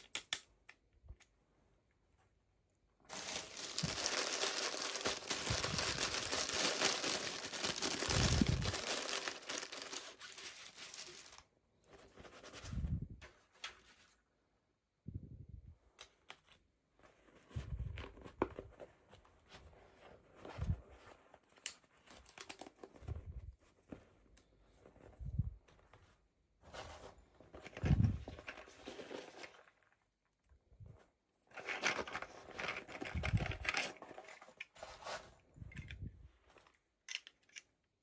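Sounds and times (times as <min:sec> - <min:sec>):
clicks and handling noises: 0:00.0 - 0:02.3, 0:15.9 - 0:26.2, 0:26.8 - 0:38.0
packaging tearing and crinkling: 0:03.1 - 0:11.4.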